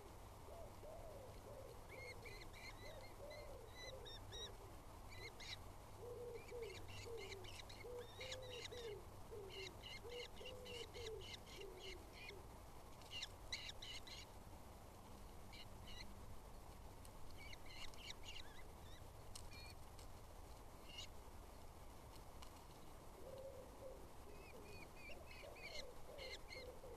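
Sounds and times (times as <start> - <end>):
small birds chirping: 15.6 - 19.8.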